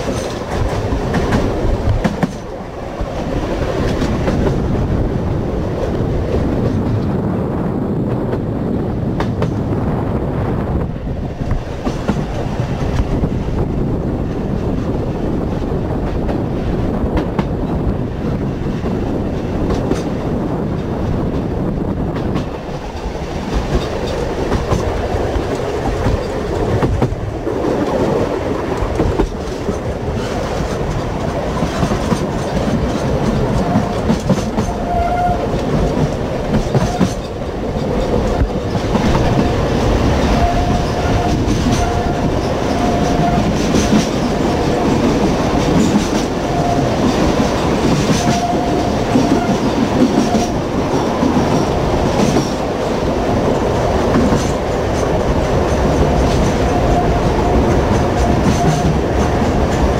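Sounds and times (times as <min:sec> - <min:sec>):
wheels clicking over rail joints: 0:00.0 - 0:05.0, 0:22.1 - 0:59.9
rail car rumbling on track: 0:00.0 - 0:59.9.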